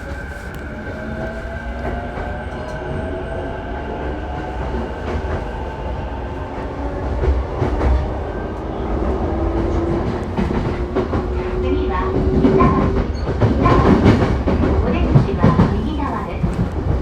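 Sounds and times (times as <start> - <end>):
train wheels rumbling on rail: 0.0 - 17.0
rail-joint clacks: 9.5 - 17.0.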